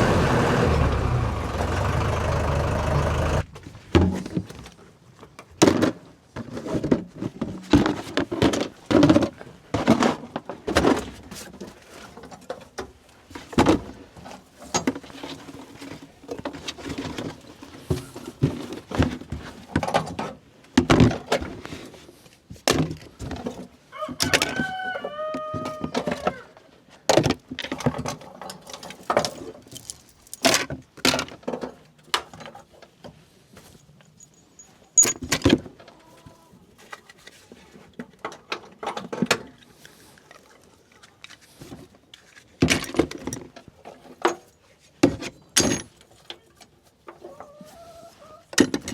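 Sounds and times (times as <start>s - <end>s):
engine running: 0.0s - 3.5s.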